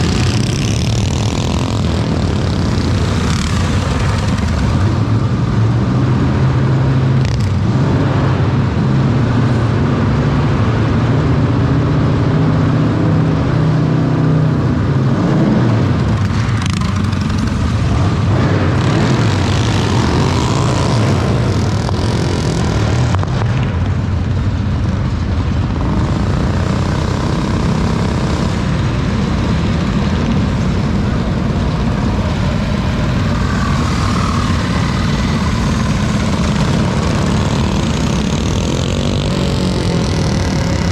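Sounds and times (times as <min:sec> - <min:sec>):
mini bike engines running: 0:00.0 - 0:06.1, 0:16.0 - 0:40.9.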